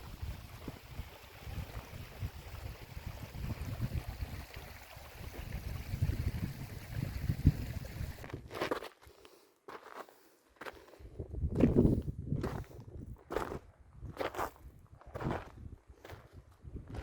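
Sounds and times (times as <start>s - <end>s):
wind buffeting microphone: 0.0s - 8.3s, 11.1s - 13.3s.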